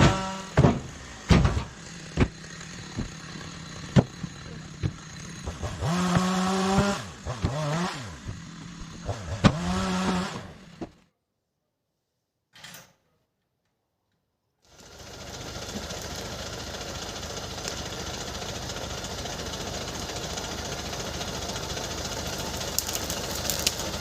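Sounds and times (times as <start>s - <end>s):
chainsaw engine revving: 0.0s - 11.0s, 14.7s - 24.0s
wood knocking and cracking: 0.0s - 11.0s, 22.5s - 24.0s.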